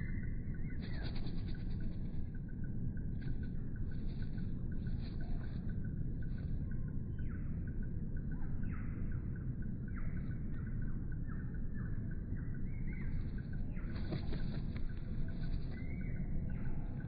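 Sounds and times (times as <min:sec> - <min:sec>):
steady low rumble: 0:00.0 - 0:17.0
small birds calling: 0:03.3 - 0:17.0.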